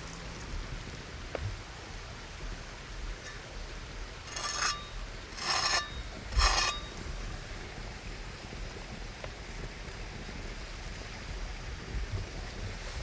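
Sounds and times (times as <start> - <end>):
steady background hiss: 0.0 - 13.0
short scraping strokes: 4.3 - 6.9.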